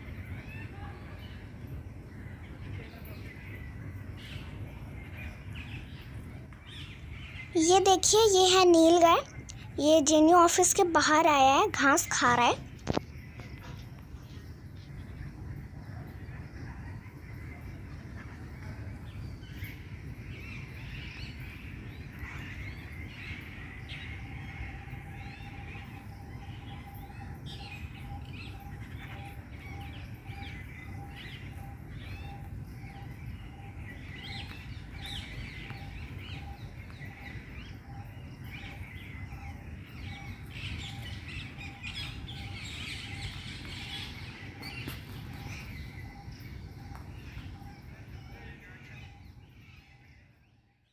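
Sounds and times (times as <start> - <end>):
low outdoor rumble: 0.0 - 50.3
small birds chirping: 0.0 - 50.9.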